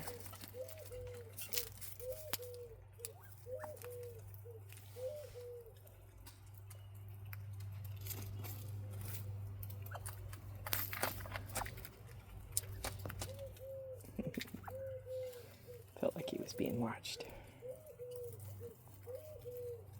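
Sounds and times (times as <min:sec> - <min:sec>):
soft low bird calls: 0:00.0 - 0:06.0, 0:12.6 - 0:19.9.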